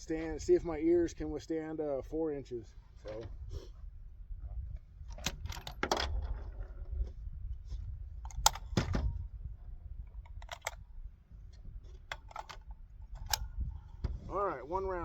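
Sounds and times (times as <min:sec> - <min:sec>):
metallic clicks of rifle handling: 0:05.1 - 0:06.5, 0:08.2 - 0:09.2, 0:10.1 - 0:10.8, 0:11.5 - 0:13.6.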